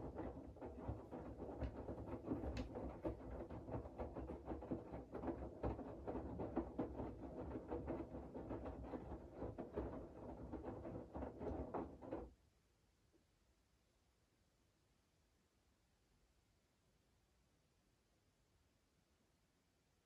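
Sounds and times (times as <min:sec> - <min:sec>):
small irregular knocks: 0:00.0 - 0:12.3.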